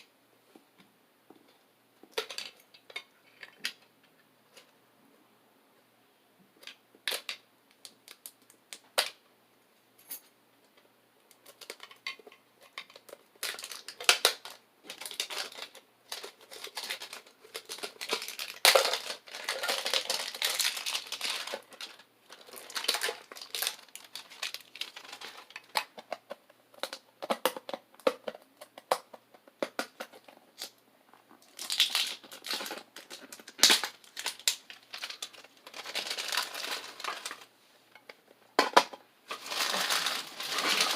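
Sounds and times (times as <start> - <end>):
card packaging crinkling and tearing: 12.7 - 26.0, 31.4 - 37.5, 39.3 - 40.9.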